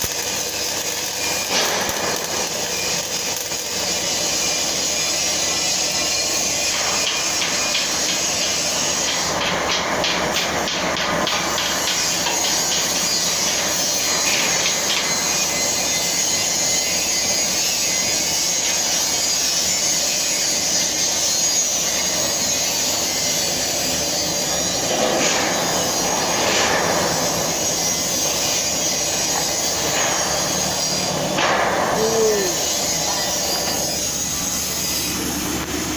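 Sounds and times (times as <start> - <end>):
welding arc hissing and crackling: 0.0 - 35.9.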